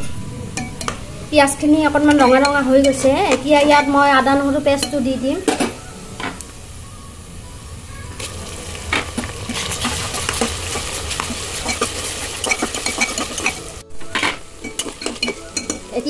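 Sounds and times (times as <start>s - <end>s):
onions sizzling in hot oil: 0.0s - 16.0s
spatula scraping pot: 8.2s - 16.0s.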